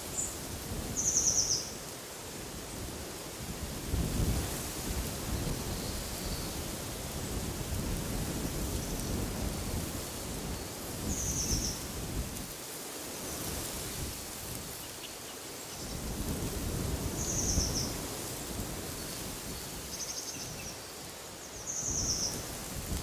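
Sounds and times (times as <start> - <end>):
wind gusting: 13.4 - 20.8.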